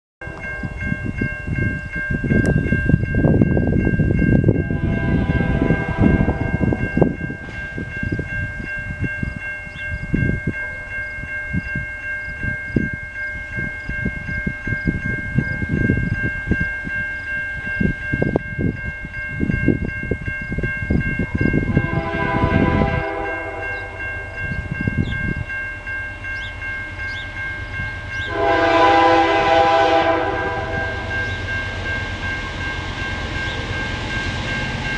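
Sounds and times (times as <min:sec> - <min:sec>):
freight train rumbling: 0:00.2 - 0:34.9
train air horn: 0:04.7 - 0:06.6, 0:21.7 - 0:24.0, 0:28.2 - 0:31.1.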